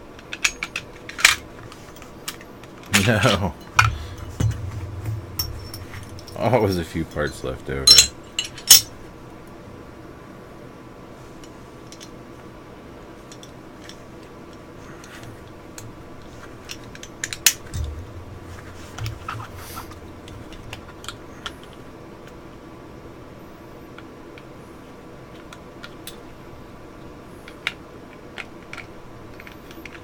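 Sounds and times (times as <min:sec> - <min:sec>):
dull knock: 0:03.8 - 0:06.7, 0:17.8 - 0:21.1.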